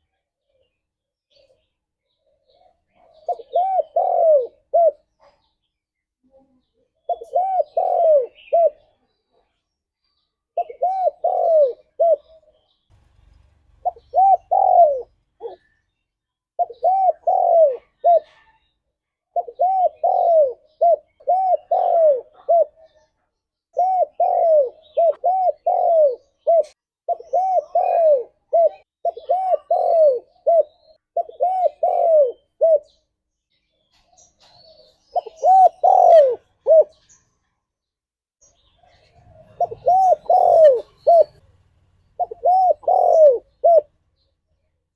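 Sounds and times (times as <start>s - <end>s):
dove cooing: 1.3s - 5.4s, 7.0s - 9.1s, 10.6s - 12.7s, 13.8s - 15.8s, 16.6s - 23.0s, 23.8s - 33.0s, 34.6s - 37.2s, 38.8s - 41.5s, 42.2s - 43.9s.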